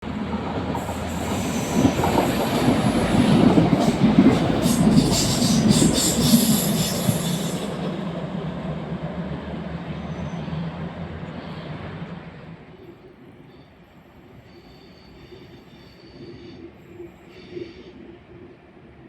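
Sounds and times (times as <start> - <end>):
train rumbling on track: 0.0 - 19.0
train wheels clicking: 0.4 - 8.7
wheels squealing on rails: 0.6 - 8.1, 9.8 - 18.2.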